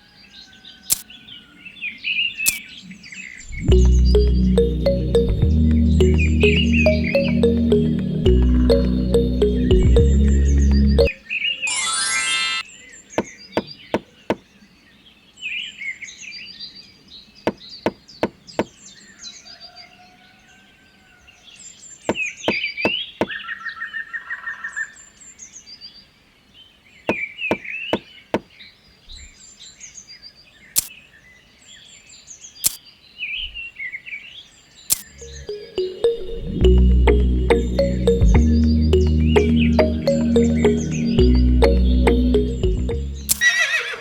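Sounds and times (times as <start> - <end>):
knocks and taps on wooden parts: 17.5 - 18.7
birds chirping: 34.9 - 44.0.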